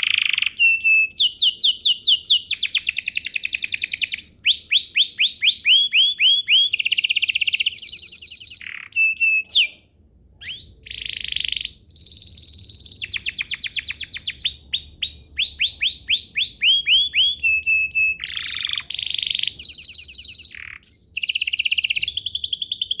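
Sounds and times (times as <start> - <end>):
canary singing: 0.0 - 23.0.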